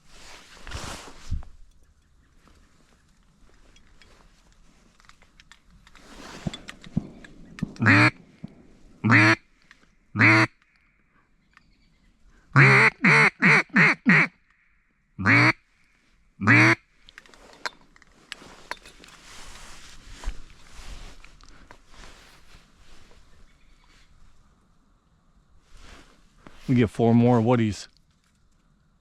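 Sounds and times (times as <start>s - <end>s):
faint rustling: 0.0s - 10.0s, 17.0s - 24.7s, 25.5s - 26.9s
duck call quacks: 7.8s - 8.2s, 9.0s - 9.4s, 10.2s - 10.6s, 12.6s - 14.4s, 15.2s - 15.6s, 16.4s - 16.8s.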